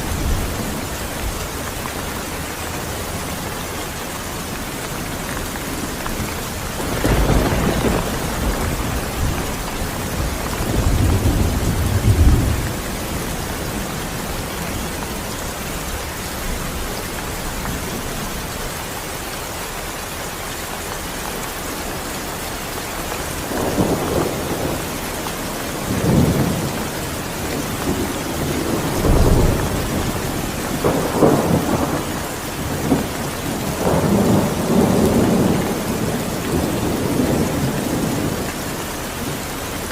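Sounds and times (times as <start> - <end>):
steady rain: 0.0 - 39.9
rolling thunder: 5.8 - 18.4, 23.3 - 38.5.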